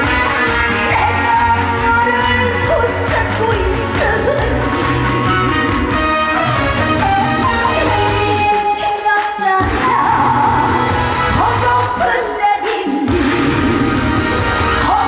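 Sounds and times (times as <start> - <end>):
woman singing through pa: 0.0 - 5.9, 7.4 - 13.2
amplified backing music: 0.0 - 15.0.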